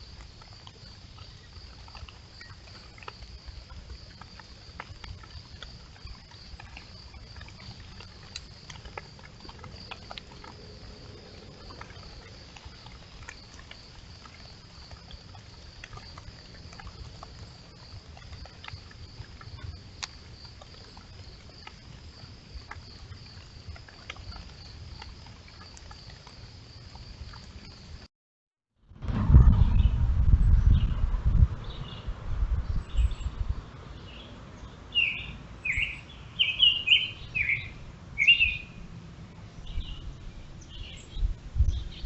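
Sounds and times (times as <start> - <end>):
low rumble: 28.8 - 33.7.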